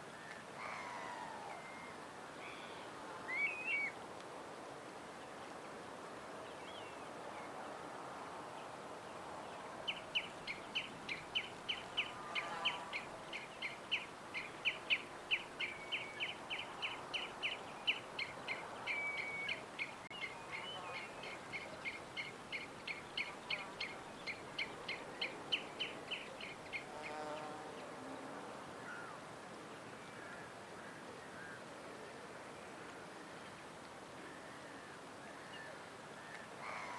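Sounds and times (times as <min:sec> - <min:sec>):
songbird chirping: 0:09.6 - 0:28.0.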